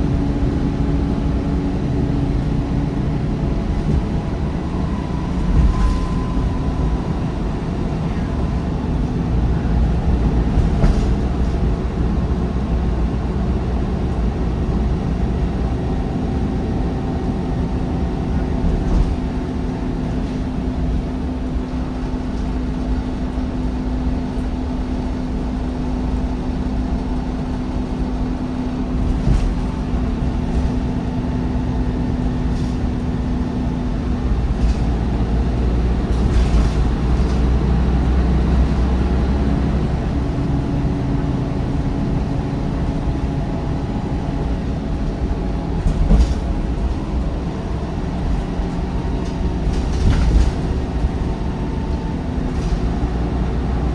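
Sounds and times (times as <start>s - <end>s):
gearbox whine: 0.0s - 10.8s
bus diesel engine rumble: 0.0s - 53.9s.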